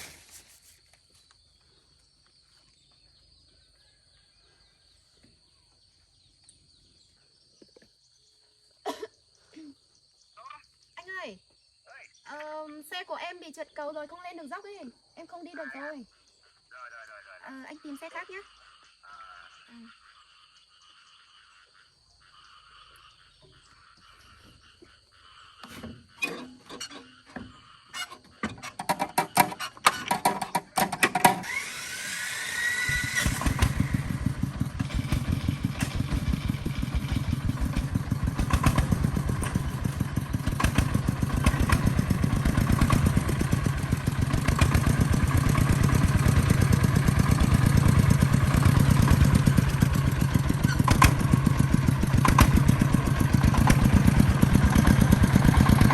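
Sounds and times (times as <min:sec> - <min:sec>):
insects chirping: 0:00.0 - 0:50.4
knocking and clattering: 0:28.4 - 0:31.4
engine running: 0:31.1 - 0:55.9.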